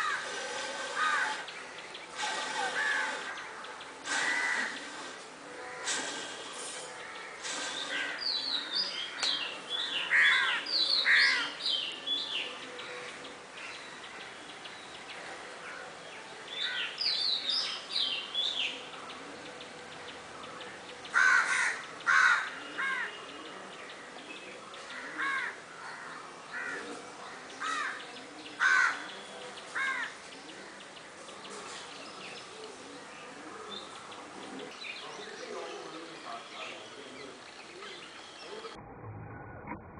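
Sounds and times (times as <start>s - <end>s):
birds calling sharply: 0.0s - 13.0s.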